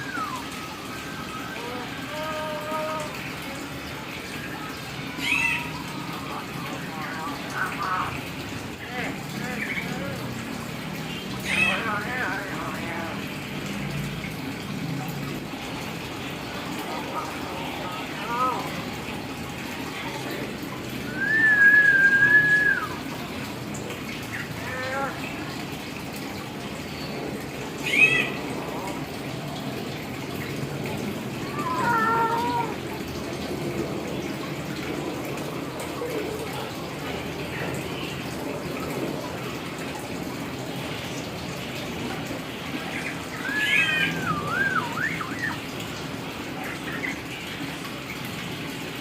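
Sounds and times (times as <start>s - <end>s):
myna whistling: 0.0s - 1.6s, 21.1s - 23.0s, 43.4s - 45.6s.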